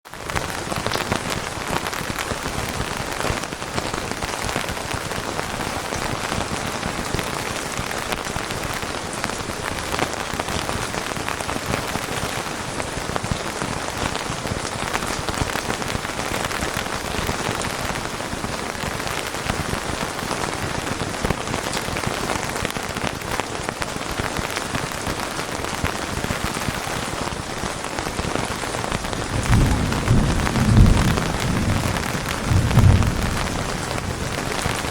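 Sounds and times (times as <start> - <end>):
steady rain falling: 0.0 - 34.9
rumble of thunder: 28.9 - 34.9.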